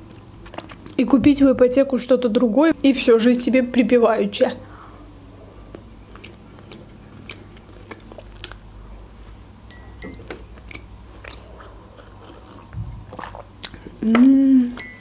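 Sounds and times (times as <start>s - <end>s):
chewing soft cake: 0.0s - 1.0s, 5.1s - 9.2s, 10.5s - 14.0s
mouth clicks and wet smacks: 0.0s - 1.0s, 6.2s - 8.8s, 12.5s - 14.4s.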